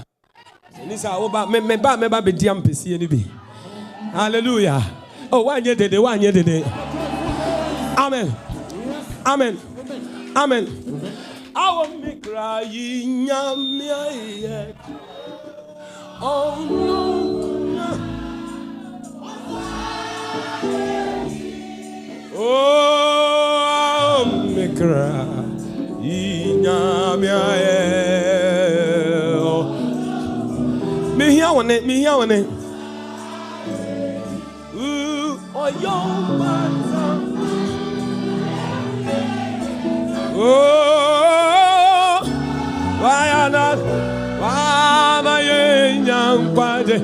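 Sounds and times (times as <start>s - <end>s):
gospel worship singing: 0.6s - 47.0s
sustained instrumental chords: 14.5s - 47.0s.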